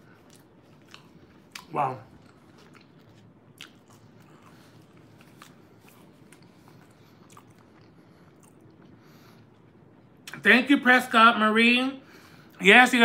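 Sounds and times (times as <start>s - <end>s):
chewing food: 0.0s - 10.4s
low room hum: 0.0s - 13.0s.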